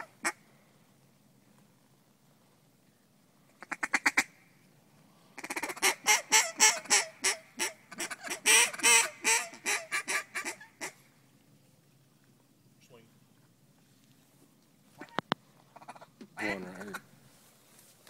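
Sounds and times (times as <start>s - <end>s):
duck call quacking: 5.4s - 11.0s.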